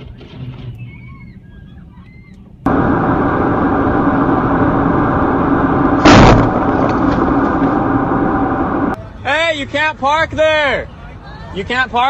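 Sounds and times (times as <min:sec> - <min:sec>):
sharp bang: 0:02.7 - 0:09.0
loud vehicle noise: 0:02.7 - 0:09.1.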